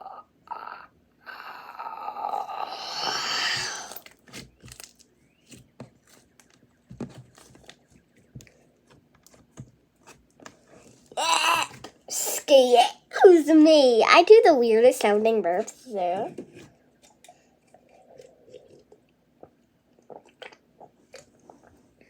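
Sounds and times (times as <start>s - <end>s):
slime squishing and rustling: 3.5s - 12.0s.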